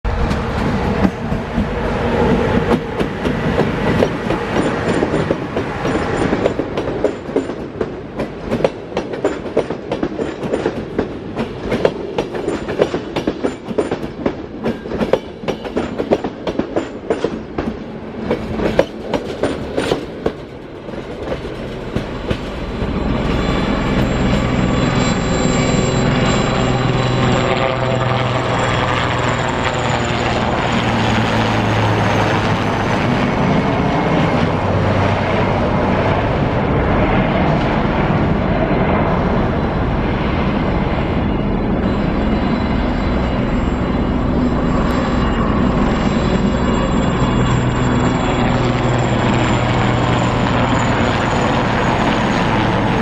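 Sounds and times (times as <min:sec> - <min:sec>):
steady drone: 0:00.0 - 0:06.3, 0:20.5 - 0:53.0
train wheels clattering over rail joints: 0:02.3 - 0:22.8.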